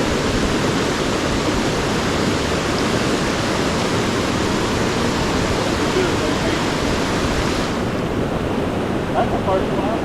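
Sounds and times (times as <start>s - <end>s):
stream water rushing: 0.0s - 10.0s.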